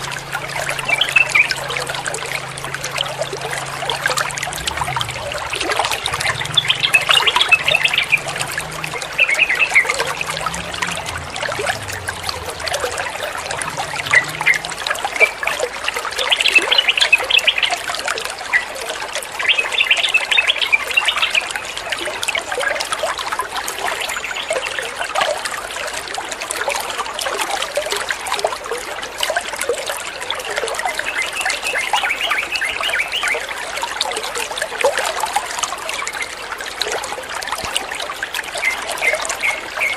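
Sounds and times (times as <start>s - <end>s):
water trickling: 0.0s - 39.9s
bird chattering song: 5.5s - 11.0s.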